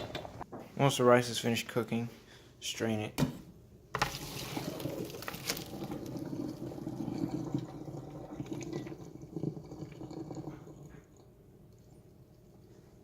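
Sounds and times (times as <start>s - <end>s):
water draining through strainer: 4.0s - 11.3s.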